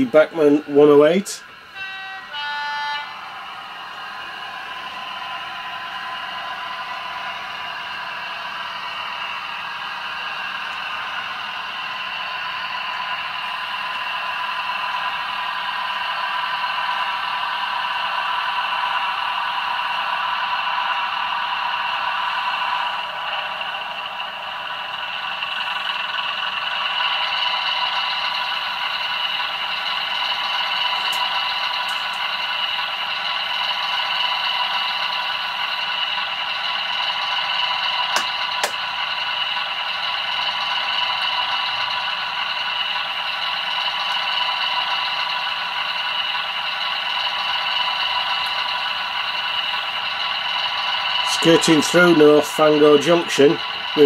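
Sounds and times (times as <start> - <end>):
model train engine sound from speaker: 0.0 - 54.0
wheels clattering on track: 23.0 - 54.0.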